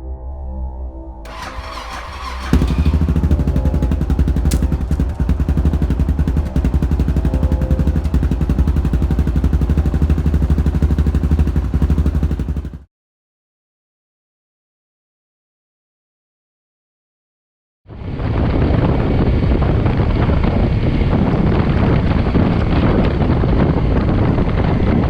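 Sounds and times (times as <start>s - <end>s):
motorcycle engine starting and running: 1.3s - 12.9s.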